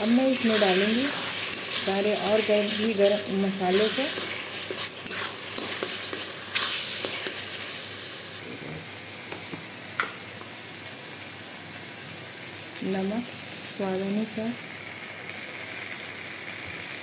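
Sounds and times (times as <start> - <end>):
metal spatula scraping pan: 0.0 - 7.5
masala sizzling in a pan: 0.0 - 17.0.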